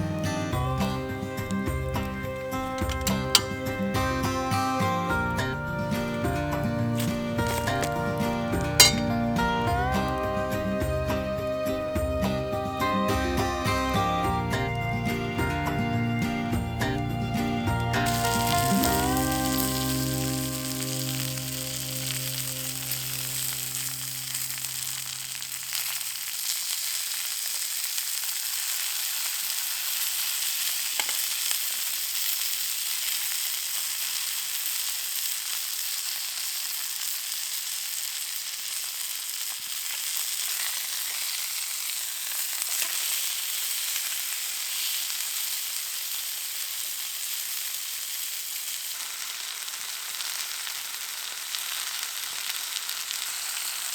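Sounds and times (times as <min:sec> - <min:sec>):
background music: 0:00.0 - 0:25.5
food sizzling in a pan: 0:00.0 - 0:53.9.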